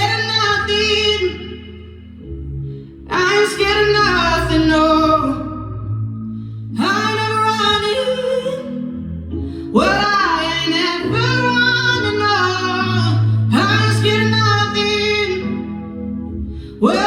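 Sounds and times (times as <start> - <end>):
woman singing: 0.0 - 1.9, 3.1 - 5.8, 6.8 - 9.0, 9.7 - 15.8, 16.8 - 17.0.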